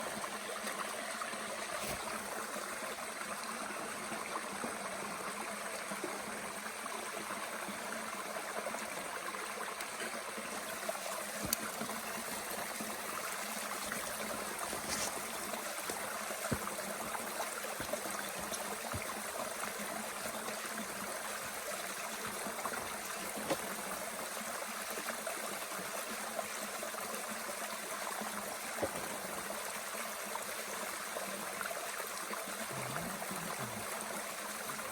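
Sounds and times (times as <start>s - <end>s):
stream running: 0.0s - 34.9s.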